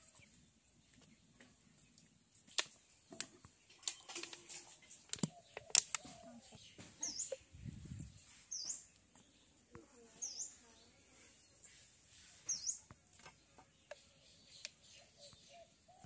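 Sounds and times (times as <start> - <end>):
small bird chirping: 2.8 - 16.0
faint clicks: 5.1 - 6.1.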